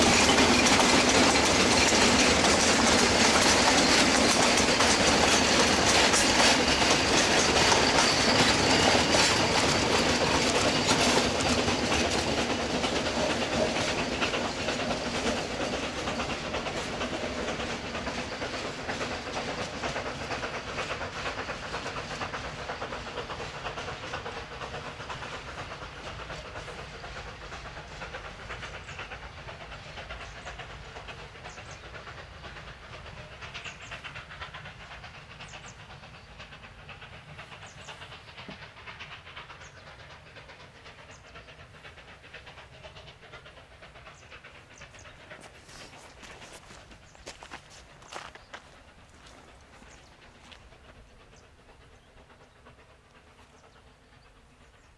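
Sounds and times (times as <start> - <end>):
wheels clattering over rail joints: 0.0 - 26.4
steam locomotive running past: 0.0 - 54.9.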